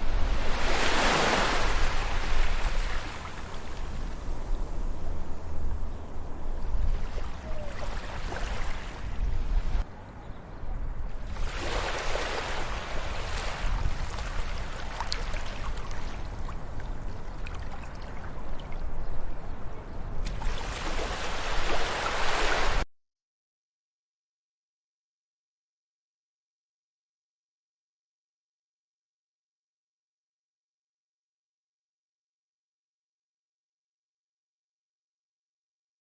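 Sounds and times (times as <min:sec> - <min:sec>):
ocean waves breaking on beach: 0:00.0 - 0:04.4, 0:06.8 - 0:09.8, 0:11.2 - 0:18.8, 0:20.3 - 0:22.8.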